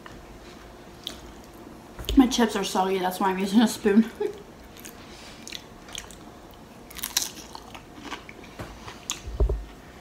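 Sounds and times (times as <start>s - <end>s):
food crunching: 4.6s - 9.3s
biting and chewing: 4.7s - 9.5s.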